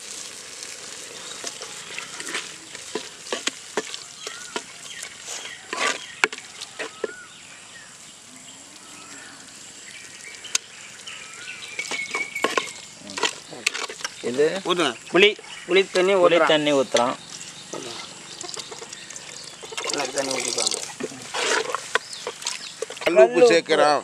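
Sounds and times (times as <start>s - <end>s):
vegetables sizzling in oil: 0.0s - 23.9s
wooden ladle scraping a pot: 1.0s - 7.3s, 11.7s - 14.3s, 17.8s - 23.2s.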